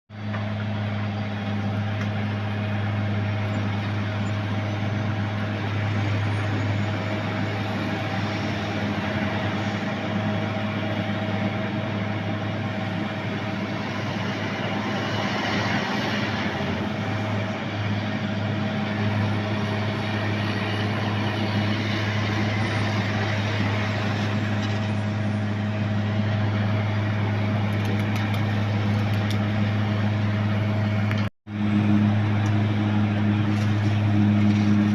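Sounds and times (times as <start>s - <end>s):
heavy diesel engine humming: 0.1s - 34.9s.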